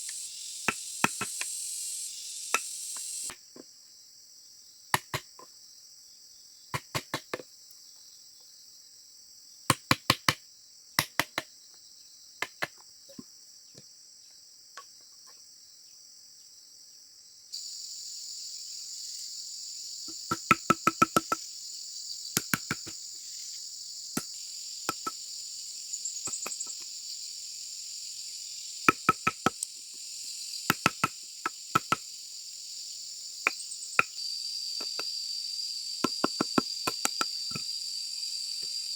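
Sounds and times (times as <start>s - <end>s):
insects trilling: 0.0s - 38.9s
tool striking bamboo: 0.7s - 1.5s, 5.0s - 5.3s, 6.8s - 7.4s, 9.7s - 10.4s, 11.0s - 11.5s, 20.1s - 21.4s, 22.4s - 23.0s, 24.9s - 25.2s, 28.9s - 29.6s, 30.7s - 31.2s, 31.8s - 32.0s, 36.0s - 37.7s.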